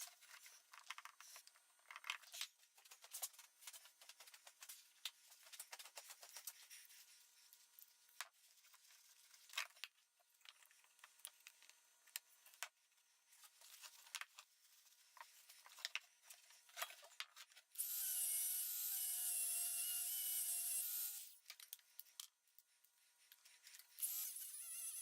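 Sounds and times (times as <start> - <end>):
small power tool whining: 17.8 - 21.4, 24.0 - 25.0.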